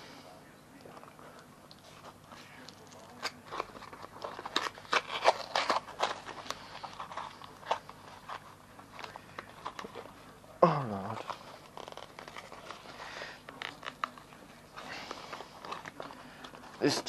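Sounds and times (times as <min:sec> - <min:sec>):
packaging crinkling: 0:00.8 - 0:17.0.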